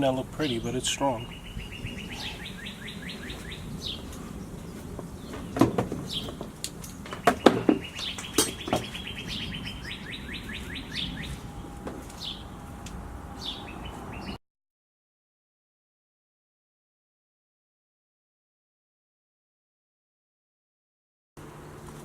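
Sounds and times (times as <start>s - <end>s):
sharp knocks: 5.3s - 9.0s.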